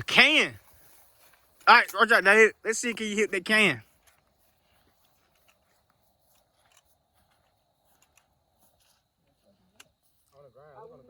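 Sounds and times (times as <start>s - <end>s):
faint scattered ticks: 3.8s - 10.5s.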